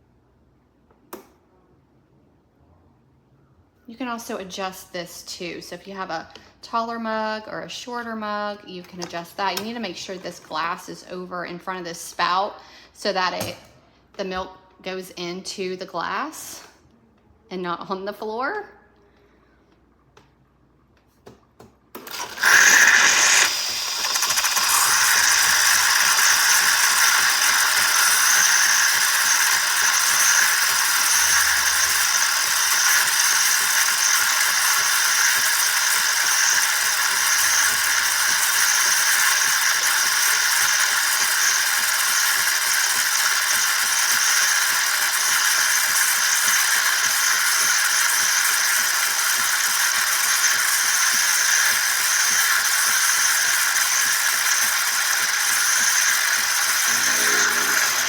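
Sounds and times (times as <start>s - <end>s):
coffee machine sputtering: 22.0s - 58.0s
steam hissing and pump rattling: 22.0s - 58.0s.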